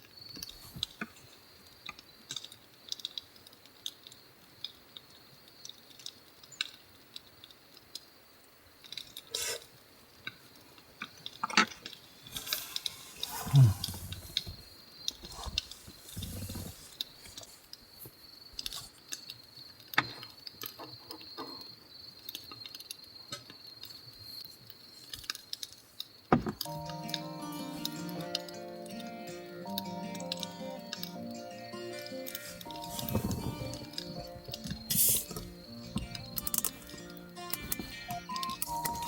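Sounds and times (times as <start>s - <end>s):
soft handling noises: 11.6s - 19.4s, 32.3s - 39.0s.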